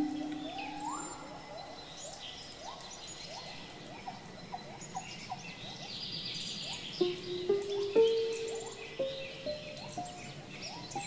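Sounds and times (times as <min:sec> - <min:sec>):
high bird chirps: 0:00.0 - 0:01.4, 0:06.7 - 0:11.0.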